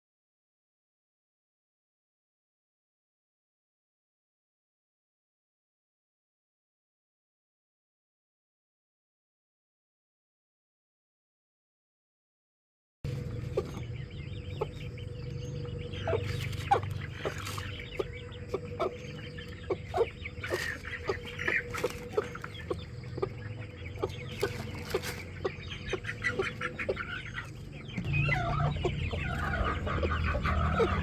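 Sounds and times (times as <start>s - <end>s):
chickens clucking: 13.1s - 31.0s
steady low hum: 13.1s - 31.0s.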